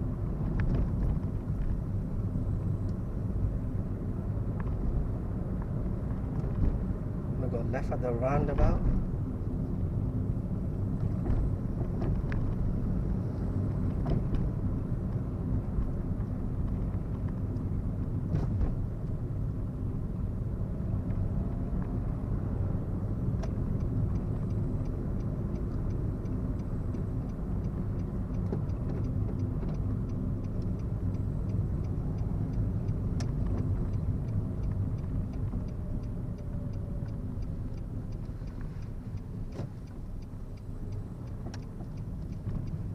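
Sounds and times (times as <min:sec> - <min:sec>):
car engine and road rumble: 0:00.0 - 0:42.9
turn signal clicking: 0:21.0 - 0:42.9.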